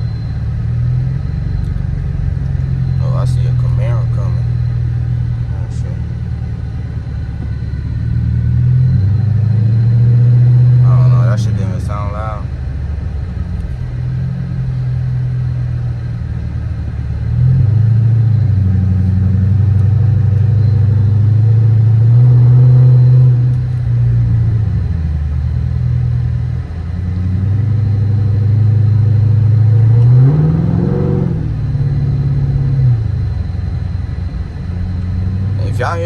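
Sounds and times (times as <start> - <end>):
car engine revving in cabin: 0.0 - 36.0.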